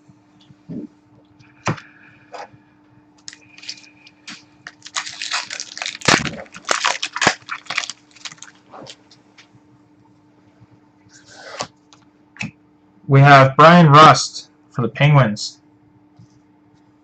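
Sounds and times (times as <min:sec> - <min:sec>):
foil wrapper crinkling: 0:03.2 - 0:09.0.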